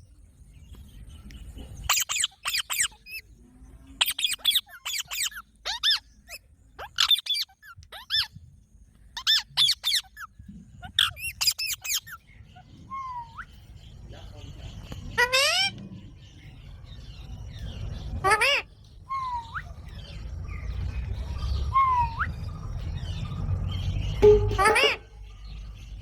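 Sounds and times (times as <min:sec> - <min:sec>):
parrot squeaky calls: 0:01.9 - 0:03.2, 0:04.0 - 0:08.4, 0:09.2 - 0:12.3, 0:15.2 - 0:15.7, 0:18.2 - 0:19.7, 0:24.2 - 0:25.3.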